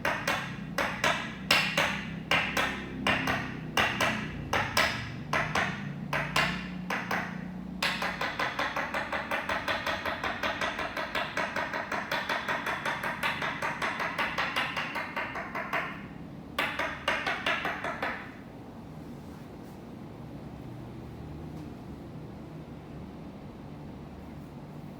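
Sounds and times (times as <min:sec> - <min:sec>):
wooden mallet knocking wooden peg: 0:00.0 - 0:18.4.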